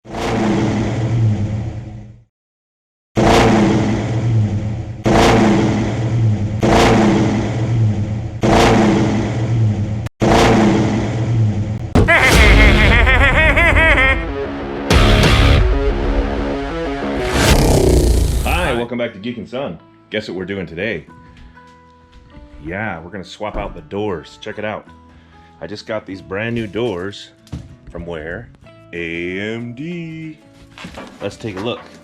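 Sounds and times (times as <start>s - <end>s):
car engine revving: 3.2s - 14.0s, 14.9s - 18.8s
heavy low rumble: 10.7s - 18.9s.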